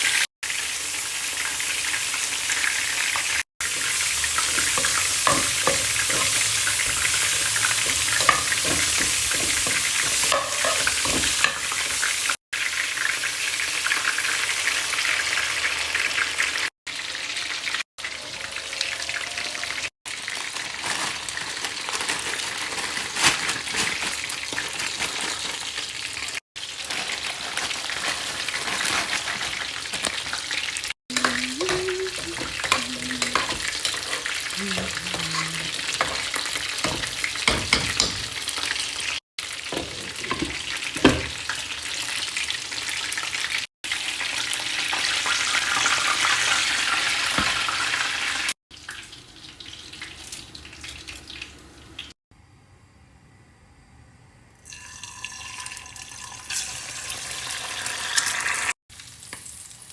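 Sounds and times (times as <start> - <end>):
food sizzling in a pan: 0.0 - 52.2, 54.6 - 59.9
utensil scraping a pan: 3.7 - 12.0, 31.1 - 38.5, 39.7 - 41.4.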